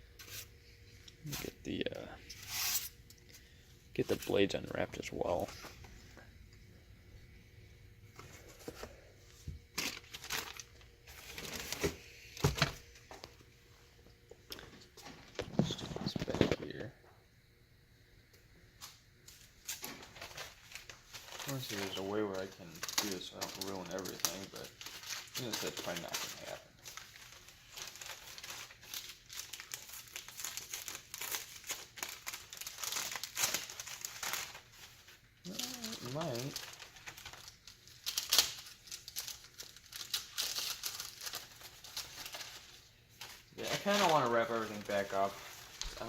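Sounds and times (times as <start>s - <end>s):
packaging wrap crinkling: 9.7s - 12.0s, 19.3s - 46.0s.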